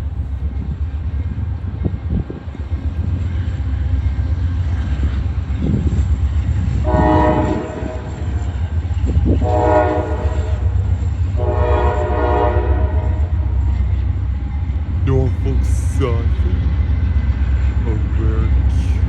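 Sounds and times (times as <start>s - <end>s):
diesel train rumbling past: 0.0s - 19.0s
locomotive air horn blasts: 6.8s - 8.5s, 9.4s - 10.8s, 11.4s - 13.4s.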